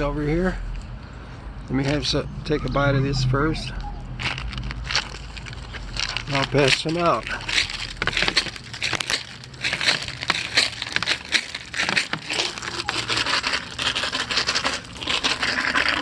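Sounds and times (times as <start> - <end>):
packaging crinkling and rustling: 4.1 - 16.0.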